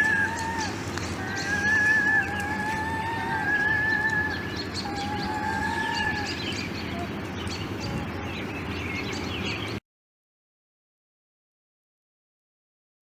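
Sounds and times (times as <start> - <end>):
birds chirping: 0.0 - 9.8
low background rumble: 0.0 - 9.8.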